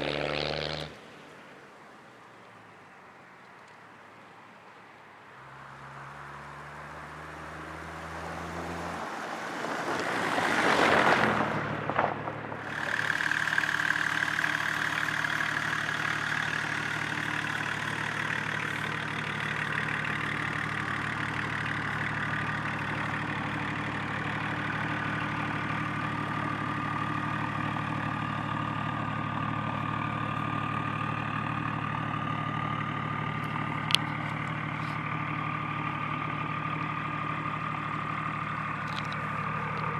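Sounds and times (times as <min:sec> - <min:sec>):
diesel engine running: 0:11.4 - 0:39.9.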